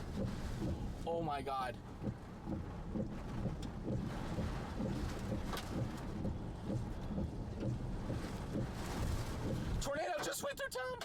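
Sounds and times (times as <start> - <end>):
rain: 4.0 - 9.9.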